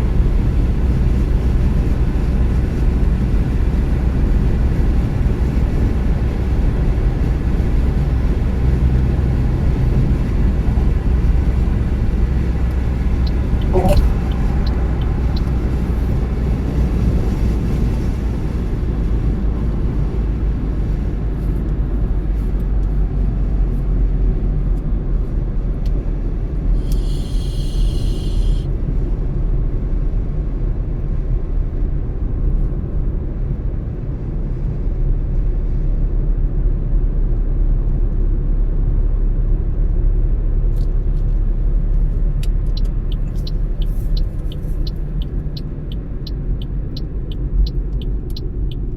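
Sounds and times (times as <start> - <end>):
road and engine rumble: 0.0 - 48.9
high-pitched tone: 13.2 - 16.7.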